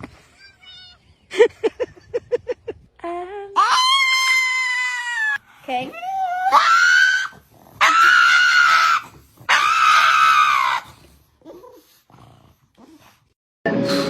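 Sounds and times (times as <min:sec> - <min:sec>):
animal screaming calls: 0:03.6 - 0:05.4, 0:06.1 - 0:11.0.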